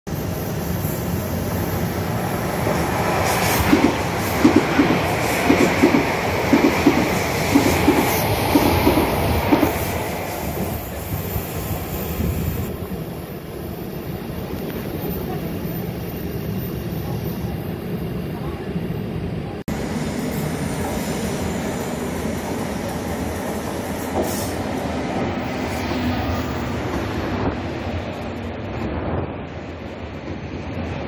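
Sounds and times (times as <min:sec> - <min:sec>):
train rumble: 0:00.1 - 0:31.0.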